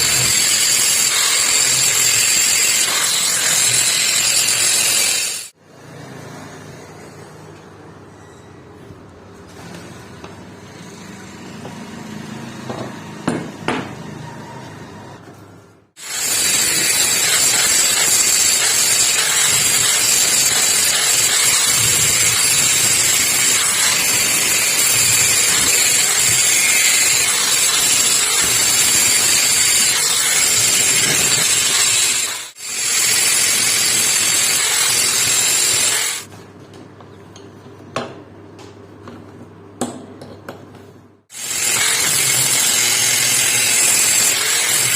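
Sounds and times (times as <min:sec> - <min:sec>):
electric grinder on metal: 0:00.0 - 0:05.6, 0:16.0 - 0:36.3, 0:41.3 - 0:44.9.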